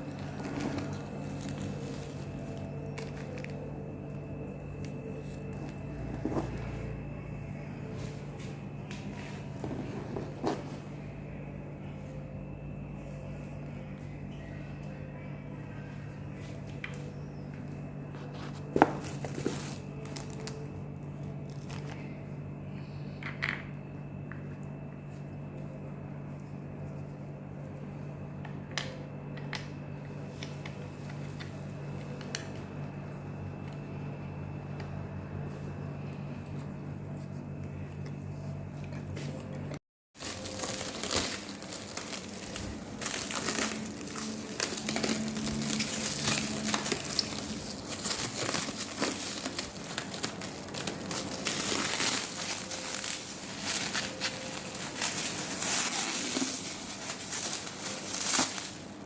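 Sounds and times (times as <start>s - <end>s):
plastic packaging crinkling: 0.0s - 7.0s, 18.2s - 22.2s, 40.2s - 59.0s
low hum: 0.0s - 59.0s.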